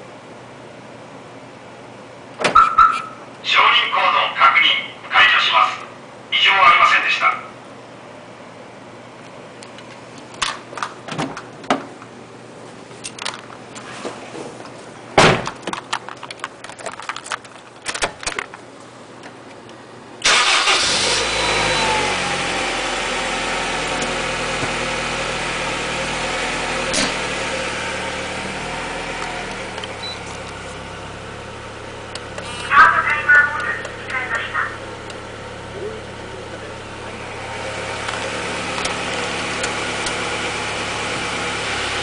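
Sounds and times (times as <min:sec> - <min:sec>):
car engine starting and idling: 0:20.2 - 0:42.0.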